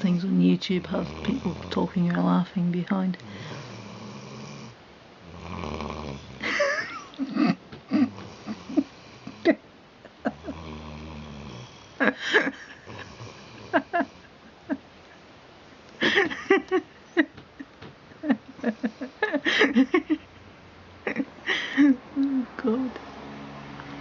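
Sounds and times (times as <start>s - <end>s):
dog snoring: 0.8s - 1.8s, 3.3s - 6.5s, 8.0s - 9.5s, 10.3s - 12.0s, 12.8s - 14.2s.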